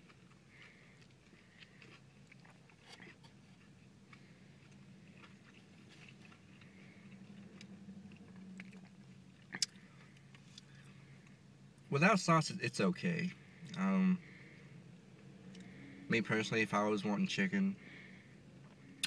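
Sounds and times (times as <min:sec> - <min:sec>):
chewing crispy chicken: 0:00.0 - 0:11.4
low steady hum: 0:00.0 - 0:19.0.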